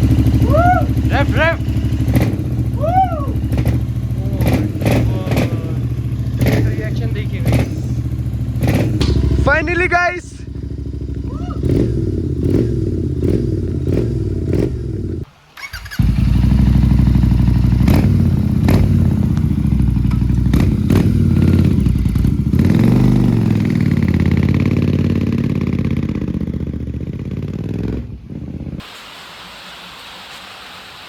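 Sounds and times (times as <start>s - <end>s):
exhaust cracks: 0.0s - 28.2s
motorcycle engine revving: 0.0s - 28.8s.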